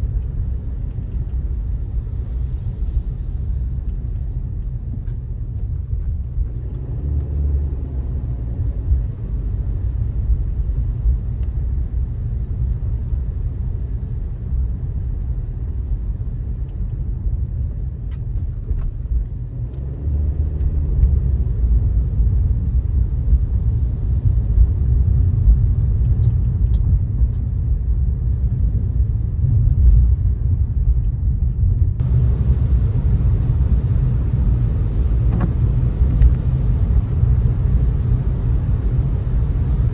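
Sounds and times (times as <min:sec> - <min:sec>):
car driving on wet road: 0:00.0 - 0:39.9.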